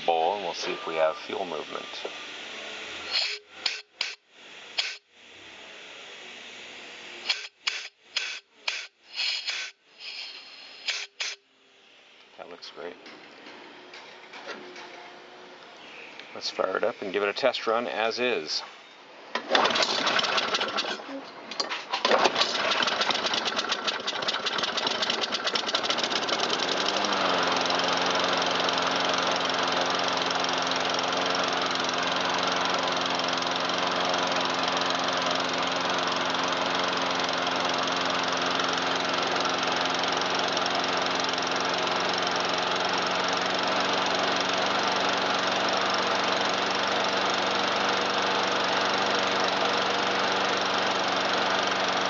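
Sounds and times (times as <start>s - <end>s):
lawn mower engine running: 0.0s - 4.0s, 19.3s - 21.1s, 21.7s - 52.0s.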